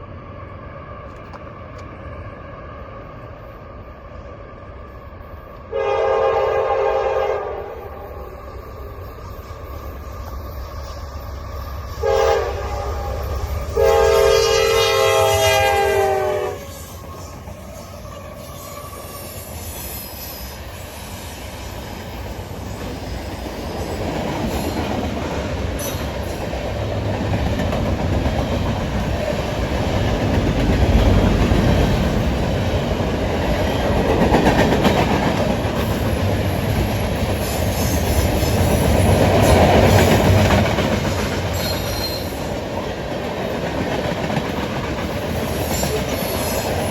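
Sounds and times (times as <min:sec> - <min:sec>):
train rumble: 0:00.0 - 0:46.9
locomotive air horn: 0:05.7 - 0:07.9, 0:12.0 - 0:16.9.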